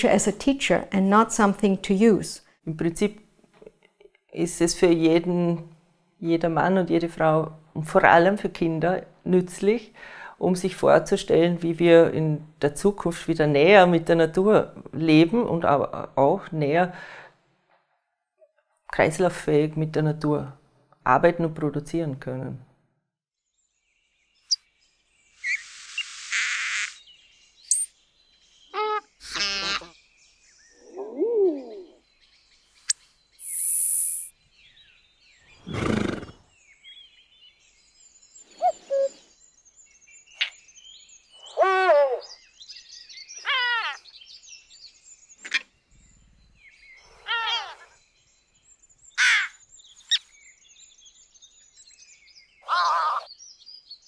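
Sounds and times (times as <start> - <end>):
birds calling: 25.2 - 54.0.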